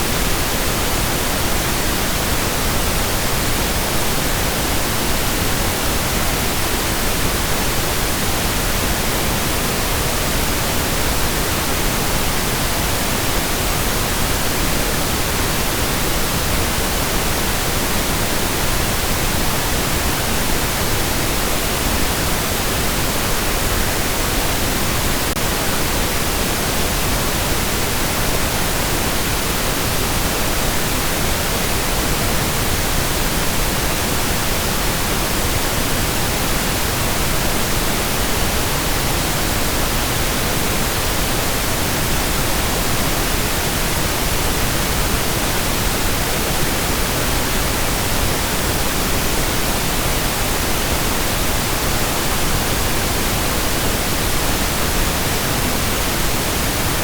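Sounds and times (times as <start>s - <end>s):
steady pink noise hiss: 0.0s - 57.0s.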